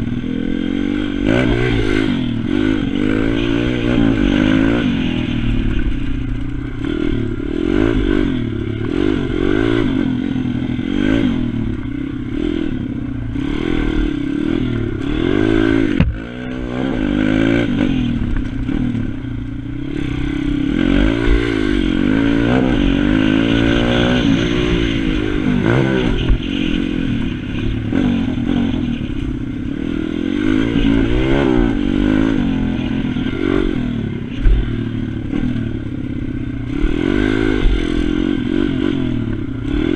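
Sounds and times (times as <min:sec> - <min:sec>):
pit bike engine revving: 0:00.0 - 0:39.9.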